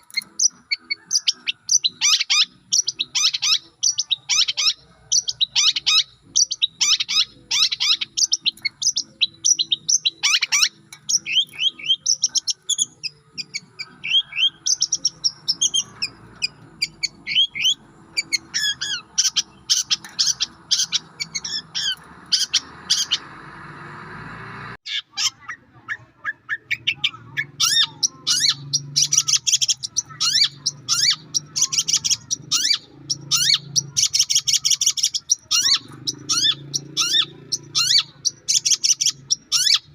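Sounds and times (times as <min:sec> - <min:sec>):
shrike chirping and trilling: 0:00.0 - 0:39.9.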